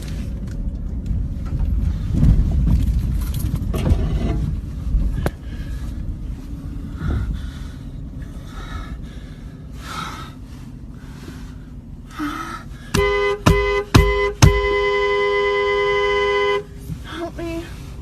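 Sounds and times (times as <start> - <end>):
car engine rumbling: 0.0 - 18.0
two-note car horn honking: 12.9 - 16.8.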